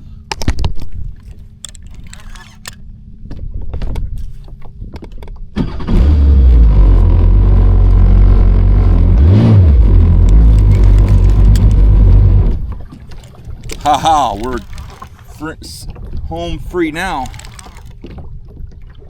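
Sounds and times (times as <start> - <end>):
jet ski engine rumbling: 6.3 - 18.0.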